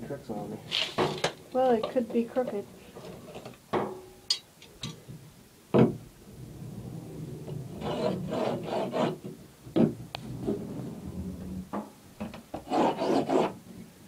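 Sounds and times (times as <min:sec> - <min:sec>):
drywall rasping cut by hand: 0:07.8 - 0:09.3, 0:12.5 - 0:13.6.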